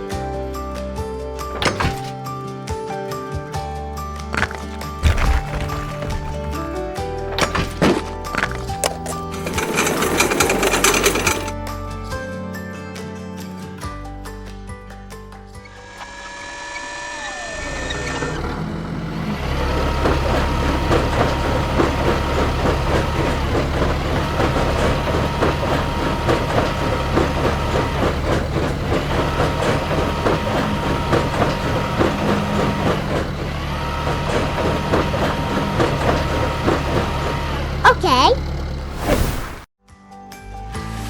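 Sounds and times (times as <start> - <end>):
truck engine running: 4.3 - 11.5, 17.2 - 39.5.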